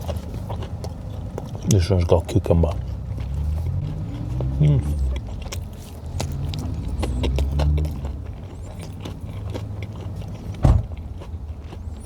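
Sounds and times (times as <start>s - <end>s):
person chewing food: 0.0s - 12.0s
thump: 10.6s - 10.9s.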